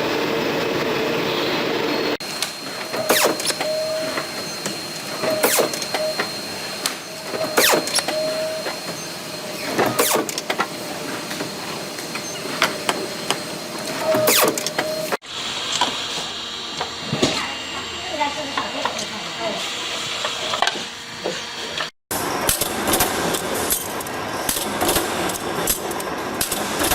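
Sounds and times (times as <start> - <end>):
constant high whine: 0.0 - 22.6
forging machine clanking strokes: 2.2 - 15.2.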